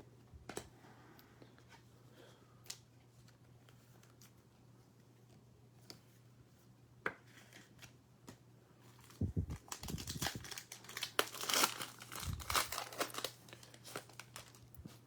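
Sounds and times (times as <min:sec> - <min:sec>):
foil wrapper crinkling and tearing: 0:09.0 - 0:15.0.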